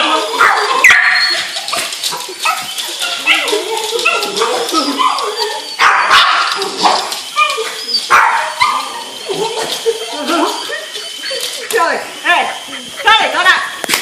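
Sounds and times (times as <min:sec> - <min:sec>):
dog whining: 0:00.0 - 0:13.8
dog barking: 0:00.4 - 0:01.3, 0:05.8 - 0:07.1, 0:08.1 - 0:08.8.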